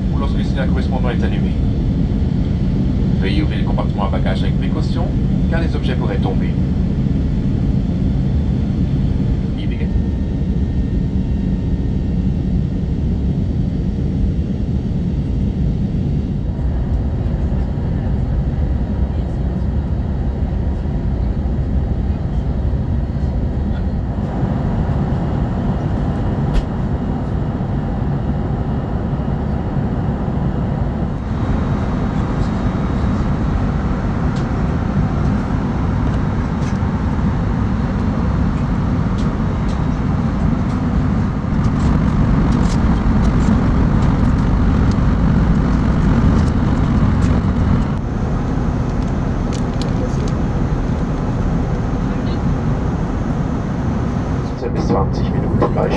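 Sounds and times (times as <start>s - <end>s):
jet engines rumbling: 0.0s - 55.9s
air rushing along fuselage: 22.6s - 55.9s.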